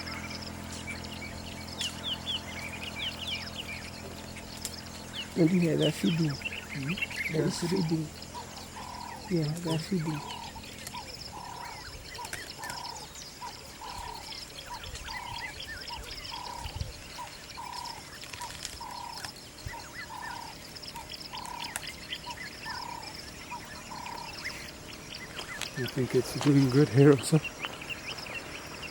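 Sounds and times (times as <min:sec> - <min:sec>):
bird chirps: 0:00.0 - 0:28.9.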